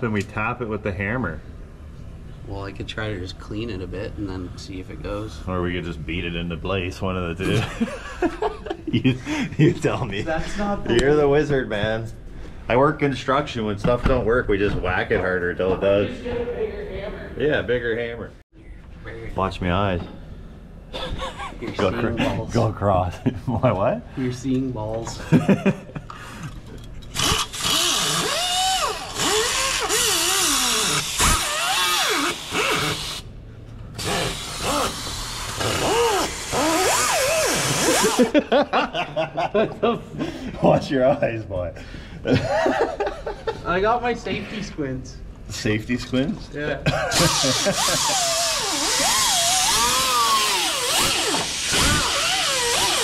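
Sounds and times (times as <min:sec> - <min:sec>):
power tool grinding metal: 0:27.1 - 0:33.2, 0:34.0 - 0:38.3, 0:47.2 - 0:53.0.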